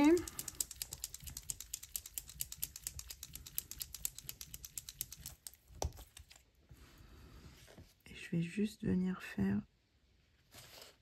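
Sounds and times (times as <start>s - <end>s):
paint marker ball rattling: 0.0s - 6.4s.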